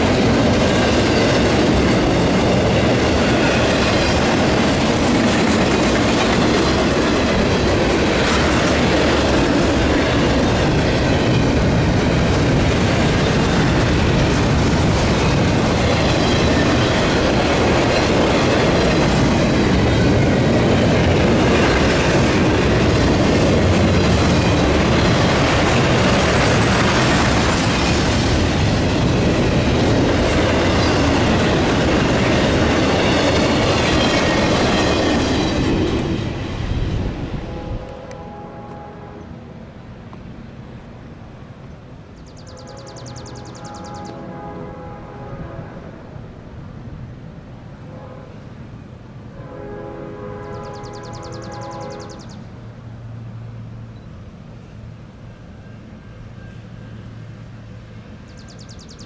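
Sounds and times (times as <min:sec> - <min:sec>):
wheels clacking over rail joints: 0:00.0 - 0:37.2
freight train rumbling past: 0:00.0 - 0:59.0.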